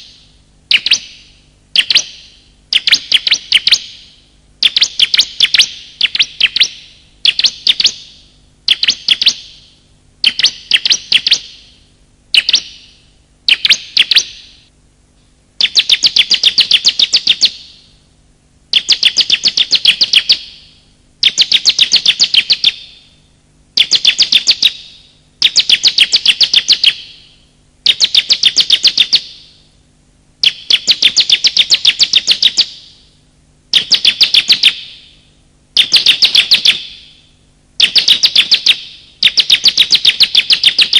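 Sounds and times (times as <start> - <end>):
bird chattering calls: 0.7 - 9.6, 10.2 - 11.7, 12.4 - 14.6, 15.6 - 17.7, 18.7 - 20.5, 35.8 - 37.1.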